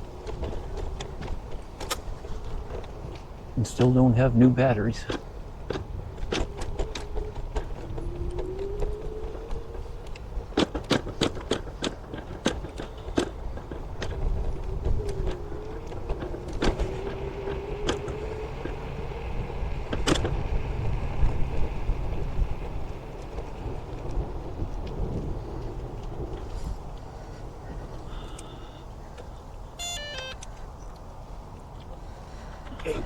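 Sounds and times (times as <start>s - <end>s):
wind rumble on microphone: 0.0s - 29.8s
sharp clicks and knocks: 0.2s - 4.0s, 5.0s - 18.8s
electric scooter motor whining: 5.2s - 30.8s.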